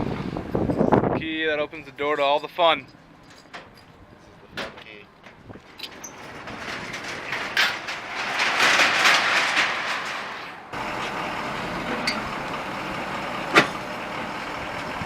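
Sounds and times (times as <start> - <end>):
running vehicle hum: 0.0 - 15.0.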